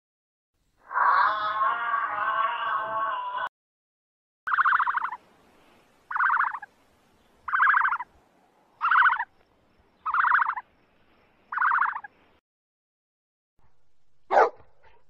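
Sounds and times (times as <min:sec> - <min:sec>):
emu calling: 0:00.8 - 0:03.5, 0:04.5 - 0:05.2, 0:06.1 - 0:06.7, 0:07.5 - 0:08.1, 0:08.8 - 0:09.3, 0:10.0 - 0:10.6, 0:11.5 - 0:12.1.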